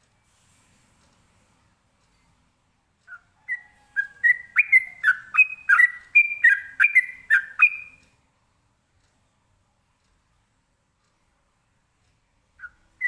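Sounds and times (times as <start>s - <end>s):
bird singing whistled notes: 3.1s - 8.0s.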